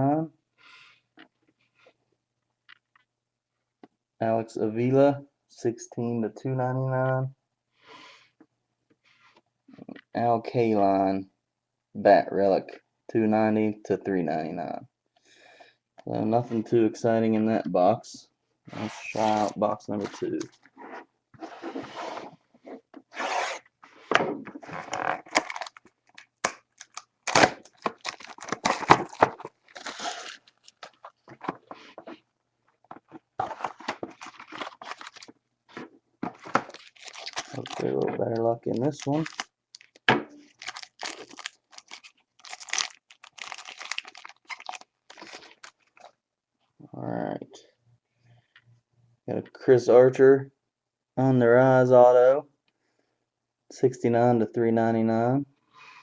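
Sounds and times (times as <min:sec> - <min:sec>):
wrapping and cardboard tearing: 0:24.6 - 0:31.7, 0:33.4 - 0:38.1, 0:38.7 - 0:46.0.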